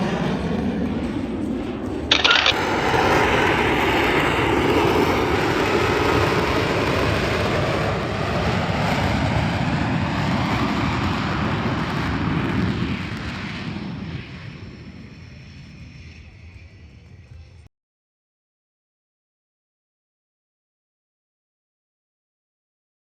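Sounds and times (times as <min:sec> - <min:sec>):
fighter jet engine: 0:00.0 - 0:17.6.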